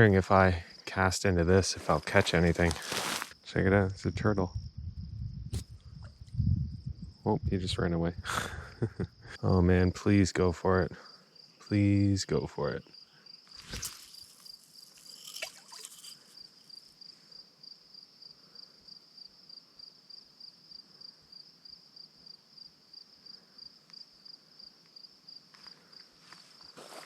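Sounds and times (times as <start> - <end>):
insect chirping: 0.0 - 27.0.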